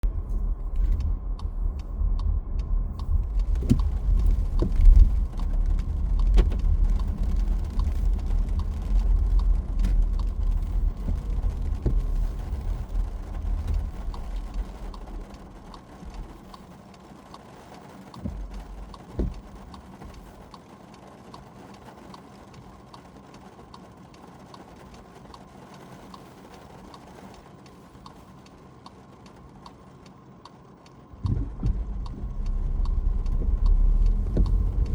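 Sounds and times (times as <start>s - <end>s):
car road rumble: 0.0s - 34.9s
raindrop taps: 0.1s - 34.9s
steady rain hiss: 0.1s - 34.9s
soft thumps: 2.6s - 8.2s, 18.2s - 20.4s, 31.2s - 34.9s.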